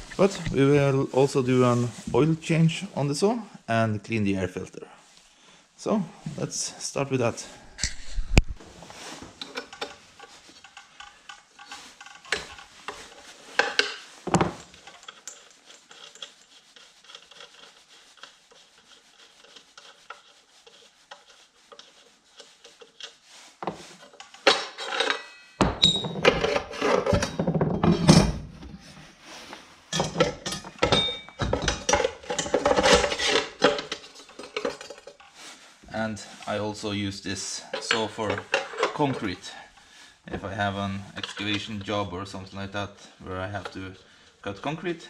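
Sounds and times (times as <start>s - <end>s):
tools clicking and rubbing metal: 7.8s - 8.6s, 9.3s - 28.2s, 29.9s - 35.6s, 37.2s - 39.5s, 41.0s - 42.1s.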